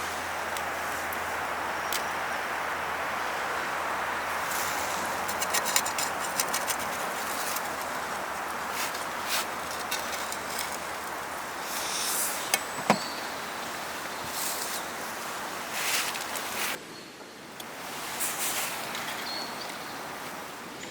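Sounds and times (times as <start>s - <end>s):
steady hiss: 0.0s - 20.9s
small hard objects clicking: 5.2s - 11.4s.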